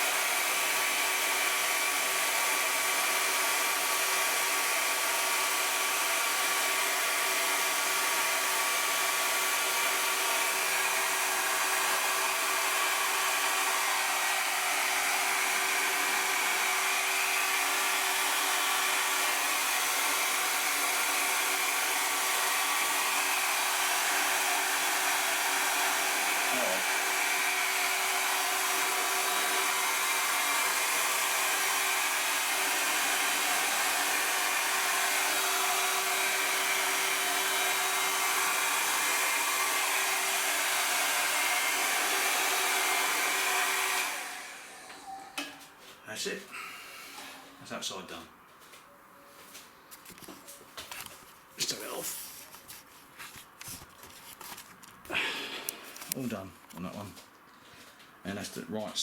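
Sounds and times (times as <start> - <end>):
electric hot-air blower humming: 0.0 - 45.7, 55.1 - 56.2.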